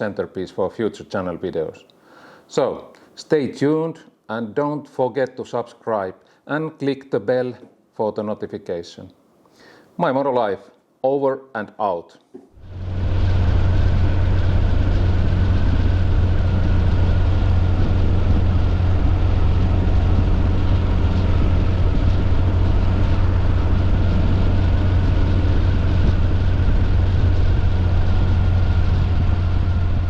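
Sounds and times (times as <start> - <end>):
engine humming steadily: 12.6 - 30.0.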